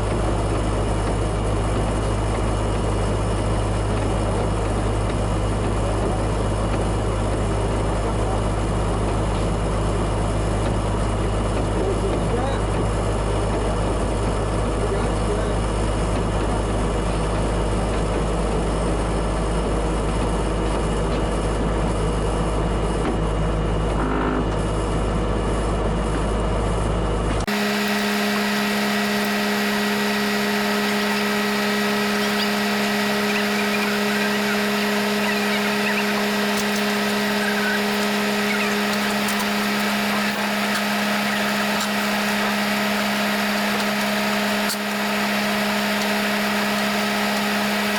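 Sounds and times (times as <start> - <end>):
vehicle engine and drivetrain hum: 0.0 - 47.9.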